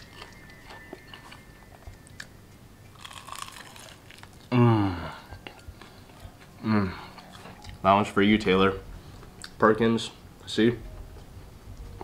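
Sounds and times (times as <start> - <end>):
crunching bites and chewing: 2.9 - 4.5
person humming mmm: 4.4 - 5.7.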